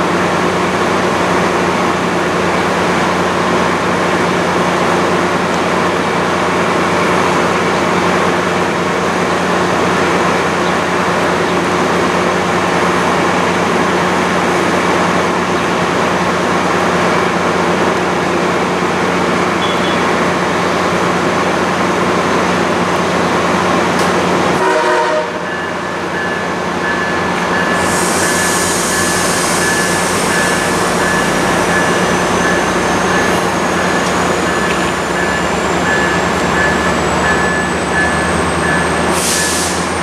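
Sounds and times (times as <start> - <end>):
diesel locomotive running: 0.0 - 40.0
short horn-like tone: 24.6 - 25.7.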